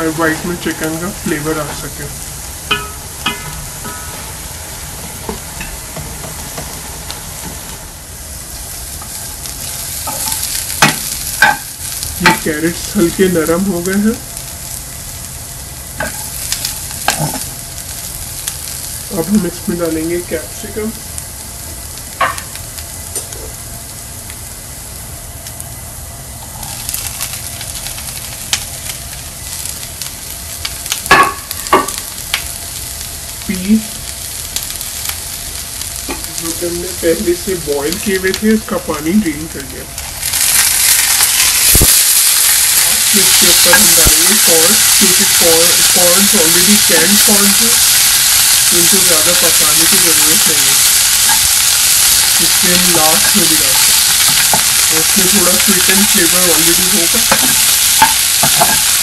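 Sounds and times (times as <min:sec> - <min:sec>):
carrots sizzling in a pan: 0:00.0 - 0:59.0
spoon clacking on a pan: 0:02.7 - 0:04.1
crackling as pepper drops in: 0:15.9 - 0:18.7, 0:26.5 - 0:36.6, 0:39.6 - 0:59.0.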